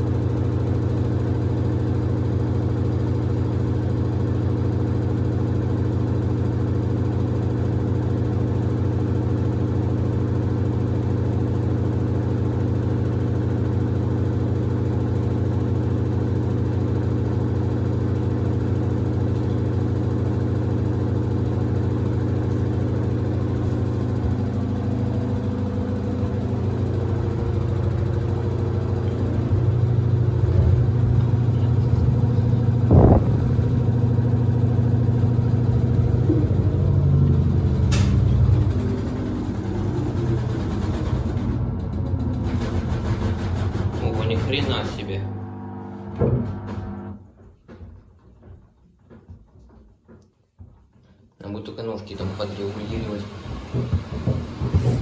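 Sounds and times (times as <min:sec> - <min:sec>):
washer-dryer motor humming: 0:00.0 - 0:47.4, 0:51.5 - 0:55.0
sharp thud: 0:32.8 - 0:33.9.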